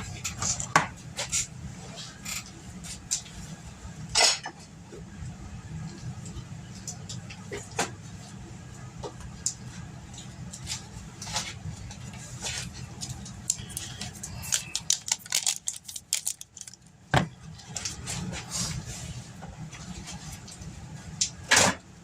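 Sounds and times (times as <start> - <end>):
steady low hum: 0.0 - 22.0
foil crinkling and rustling: 10.8 - 16.9.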